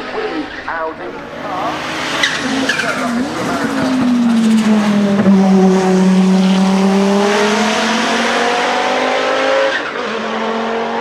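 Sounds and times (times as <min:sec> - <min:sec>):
car engine at high revs: 0:00.9 - 0:11.0.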